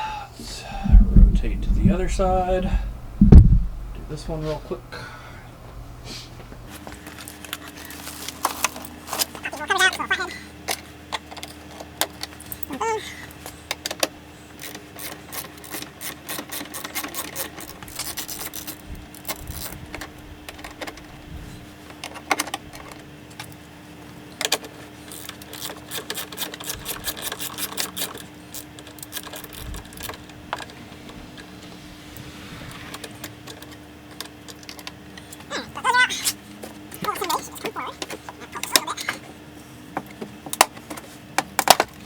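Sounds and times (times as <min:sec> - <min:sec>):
steady low hum: 0:00.0 - 0:07.6, 0:28.1 - 0:35.8.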